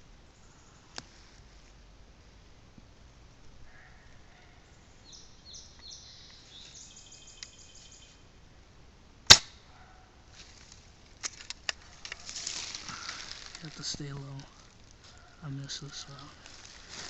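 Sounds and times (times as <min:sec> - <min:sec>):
birds chirping: 0:02.8 - 0:08.3, 0:11.6 - 0:17.0
airsoft rifle shot: 0:09.3 - 0:09.6.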